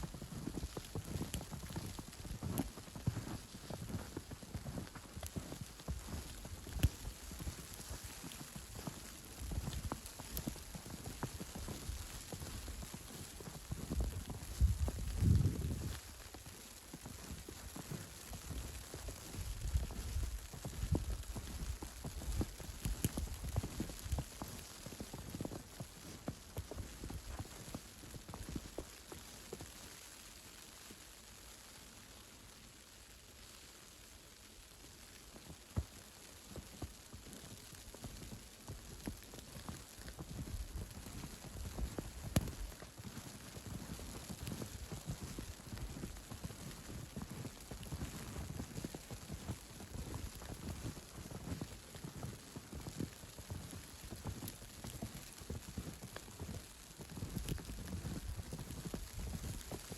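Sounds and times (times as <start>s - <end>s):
footsteps crunching in snow: 0.0s - 31.0s, 35.3s - 59.9s.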